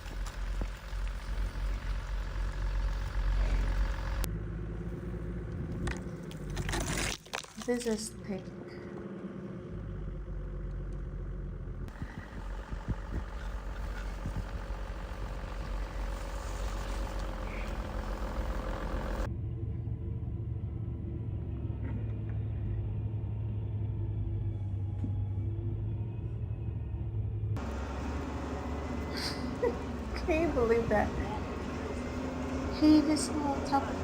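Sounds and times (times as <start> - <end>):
steady low hum: 0.0 - 6.7, 11.8 - 21.8
car engine idling: 0.0 - 7.0, 7.8 - 19.3, 26.0 - 34.0.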